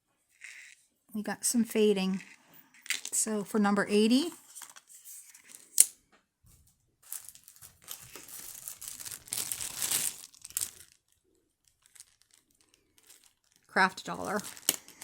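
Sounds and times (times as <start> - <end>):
wrapping crinkling and rustling: 3.9 - 5.9, 7.0 - 15.0.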